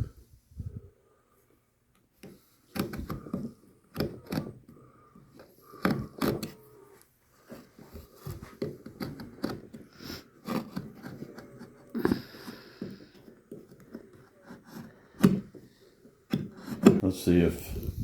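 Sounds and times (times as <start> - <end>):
hand tool scraping wood: 7.4 - 17.0.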